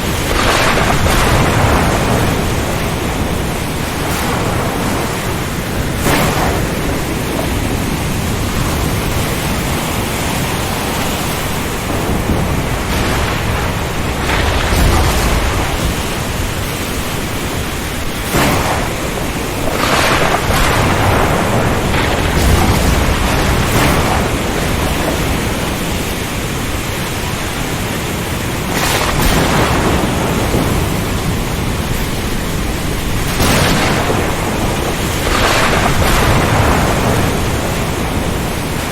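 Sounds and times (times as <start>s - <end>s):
wind rushing: 0.0s - 27.4s
low thunder rumbles: 0.0s - 38.9s
rain: 0.0s - 38.9s
surf: 0.0s - 38.9s.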